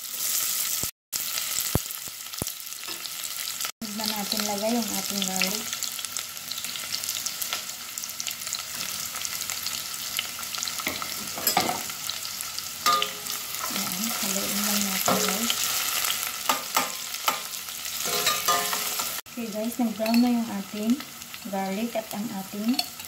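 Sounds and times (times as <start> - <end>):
onion sizzling in hot oil: 0.0 - 23.0
metal spoon scraping a pot: 12.8 - 19.1.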